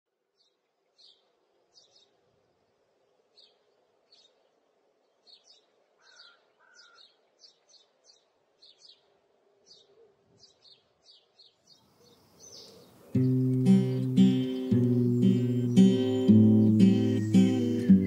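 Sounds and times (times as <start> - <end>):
songbird chirps: 0.1 - 18.0
lower two-note bird call: 13.2 - 18.0.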